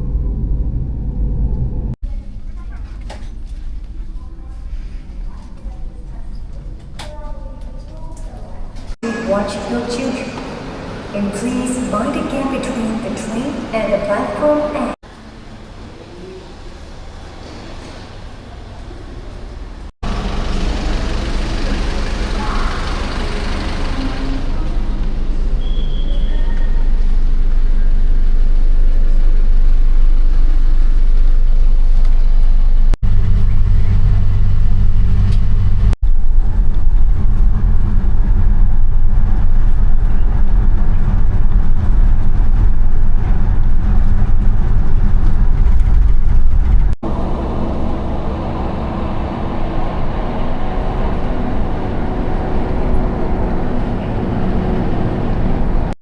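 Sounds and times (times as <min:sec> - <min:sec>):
moving vehicle rumble: 0:15.0 - 0:56.0.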